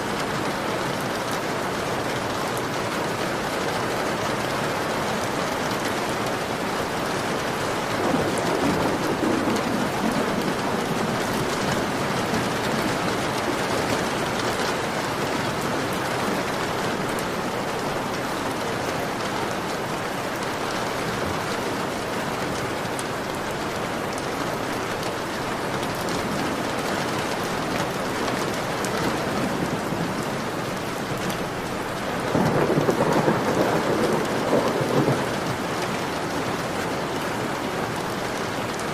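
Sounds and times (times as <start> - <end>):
heavy rain on a window: 0.0 - 38.9
thunder rumbling: 7.7 - 17.6, 25.8 - 35.7.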